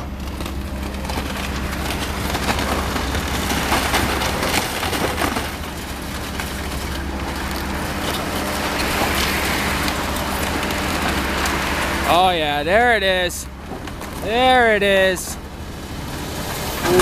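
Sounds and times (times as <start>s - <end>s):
debris crunching and crackling: 0.0s - 17.0s
excavator engine hum: 0.0s - 17.0s.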